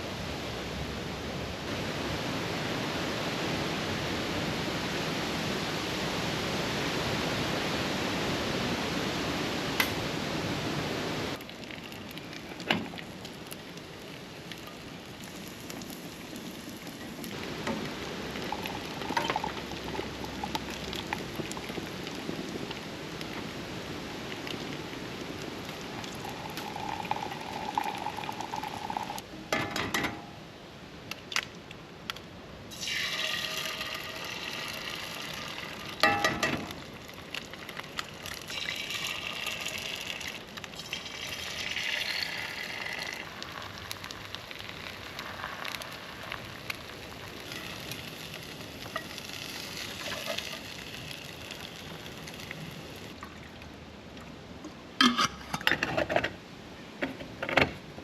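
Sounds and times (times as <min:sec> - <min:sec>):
food sizzling in a skillet: 0:32.7 - 0:36.1, 0:38.4 - 0:53.1.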